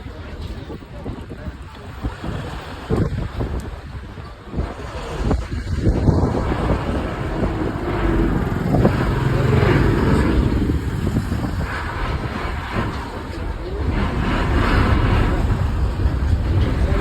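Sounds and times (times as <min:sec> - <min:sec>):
wind buffeting microphone: 0:00.0 - 0:17.0
low rumble of passing traffic: 0:04.0 - 0:17.0.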